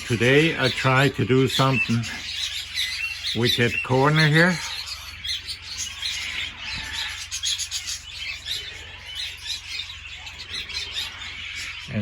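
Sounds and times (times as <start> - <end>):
budgerigars chirping and squawking: 0.0 - 12.0.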